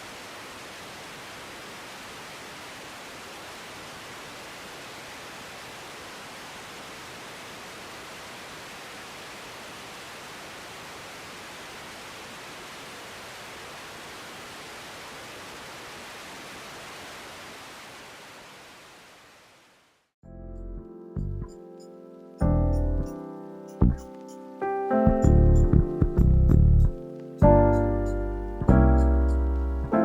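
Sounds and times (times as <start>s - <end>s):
steady hiss: 0.0s - 20.1s, 21.6s - 25.6s
background music: 20.2s - 30.0s.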